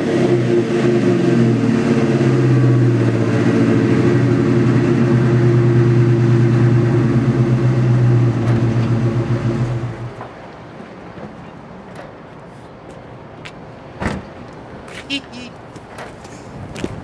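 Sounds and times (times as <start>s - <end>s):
car exhaust engine running: 0.0s - 10.2s.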